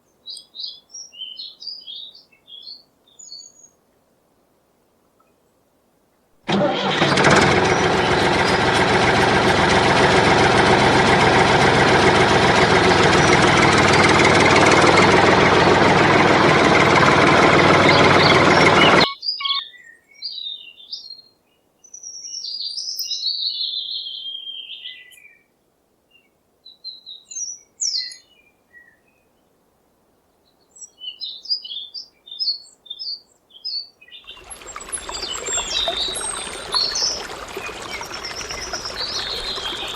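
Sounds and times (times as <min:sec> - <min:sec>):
tractor engine running: 0:06.5 - 0:19.1, 0:34.4 - 0:39.9
birds chirping: 0:06.5 - 0:19.9, 0:34.3 - 0:39.9.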